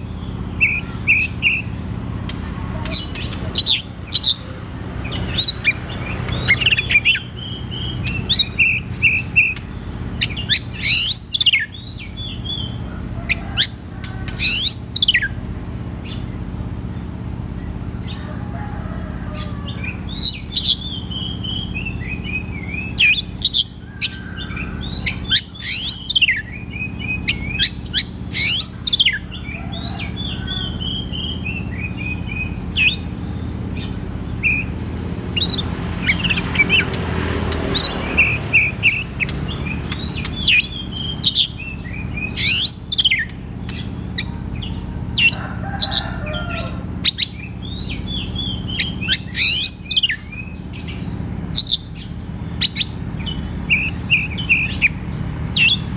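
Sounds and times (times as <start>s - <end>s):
bird singing whistled notes: 5.1s - 12.8s, 19.9s - 36.8s, 37.8s - 45.3s, 47.0s - 55.9s.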